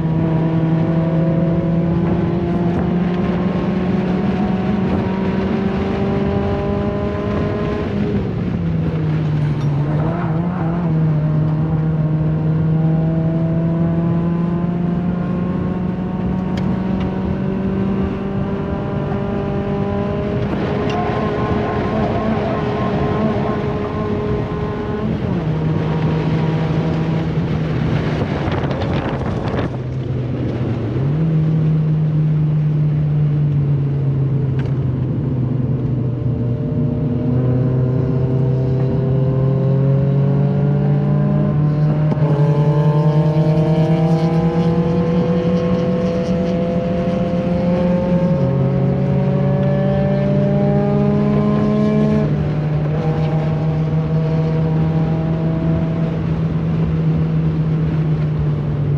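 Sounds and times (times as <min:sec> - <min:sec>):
car engine running hard: 0:00.0 - 0:58.9.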